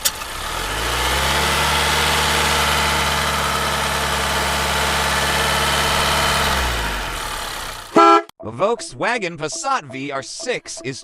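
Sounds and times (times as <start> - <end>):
car engine idling: 0.0 - 8.2.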